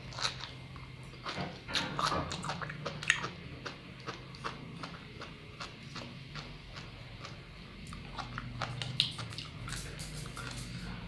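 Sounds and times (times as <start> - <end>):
wet chewing pops and clicks: 7.9 - 10.6.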